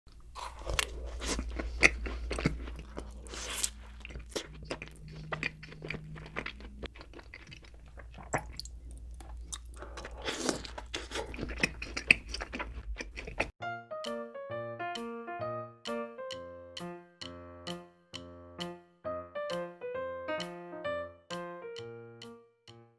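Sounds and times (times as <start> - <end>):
biting and chewing: 0.1 - 13.6.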